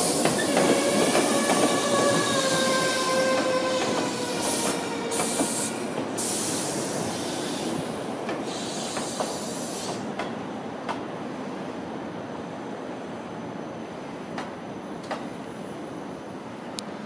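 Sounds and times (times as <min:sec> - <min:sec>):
hissing bursts: 0:00.0 - 0:10.0
train rolling rumble: 0:00.0 - 0:17.0.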